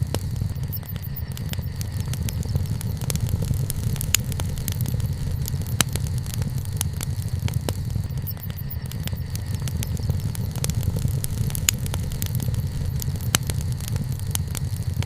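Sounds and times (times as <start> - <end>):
bonfire crackling and popping: 0.0 - 15.0
fire low rumble: 0.0 - 15.0.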